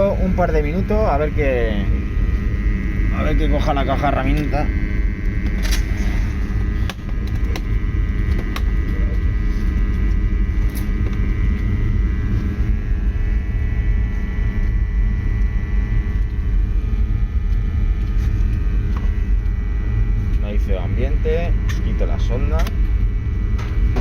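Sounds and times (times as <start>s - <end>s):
boiler burner rumble: 0.0s - 24.0s
burner fan whine: 0.0s - 24.0s.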